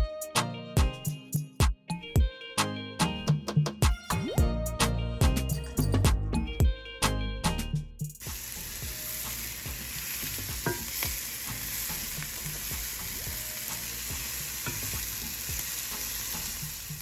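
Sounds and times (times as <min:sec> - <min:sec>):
food sizzling in a frying pan: 0:08.2 - 0:17.0.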